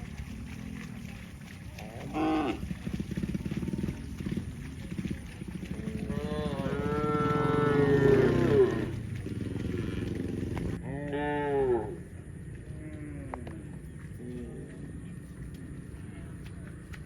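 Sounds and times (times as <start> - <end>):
cow mooing: 1.8 - 3.2, 5.6 - 12.0.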